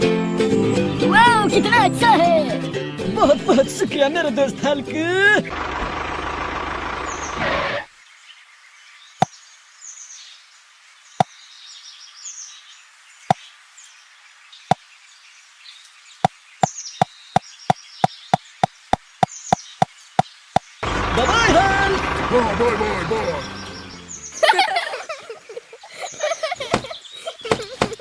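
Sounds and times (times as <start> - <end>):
faint bird chirping: 7.0 - 21.0, 23.0 - 28.0.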